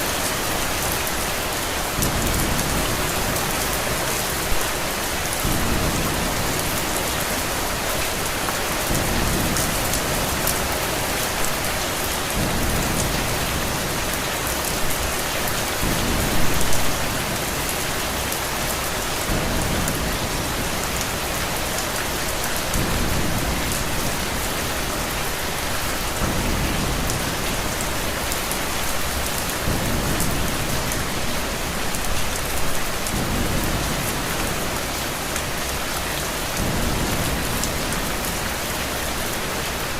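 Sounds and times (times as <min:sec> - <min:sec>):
heavy rain falling: 0:00.0 - 0:39.9
sharp ticks of raindrops: 0:00.1 - 0:39.9.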